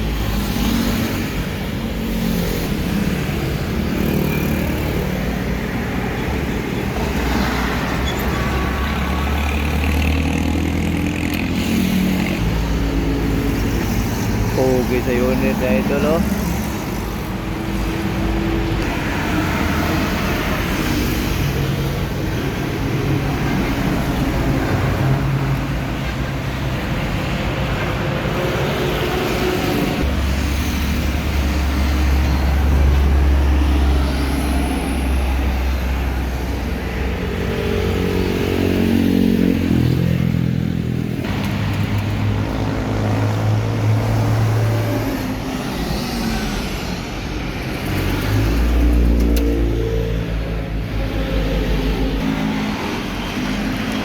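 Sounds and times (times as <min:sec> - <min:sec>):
heavy trucks passing: 0:00.0 - 0:54.0.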